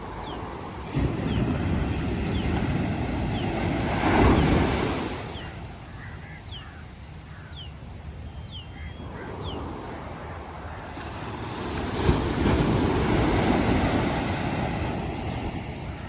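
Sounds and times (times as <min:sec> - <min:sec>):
waves breaking: 0:00.0 - 0:08.2, 0:08.8 - 0:16.0
bird chirps: 0:00.2 - 0:01.5, 0:02.2 - 0:09.7.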